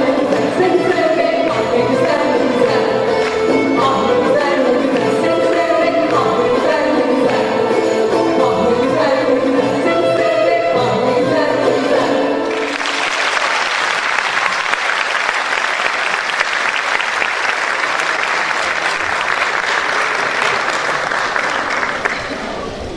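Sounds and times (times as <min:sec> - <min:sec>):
audience applauding: 0:12.4 - 0:22.7.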